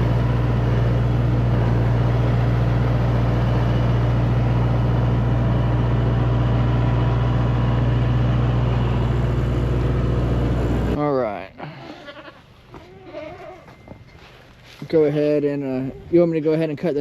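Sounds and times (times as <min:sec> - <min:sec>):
tractor engine humming: 0:00.0 - 0:11.1.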